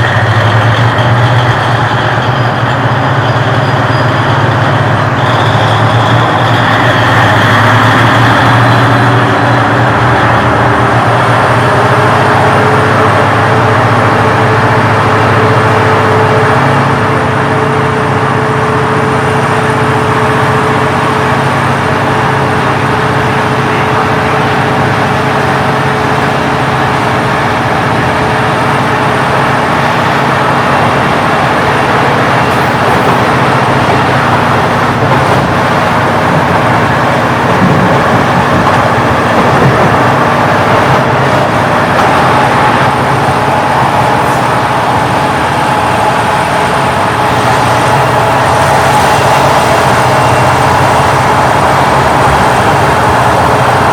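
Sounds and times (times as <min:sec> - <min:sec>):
large diesel engine droning: 0:00.0 - 0:53.9.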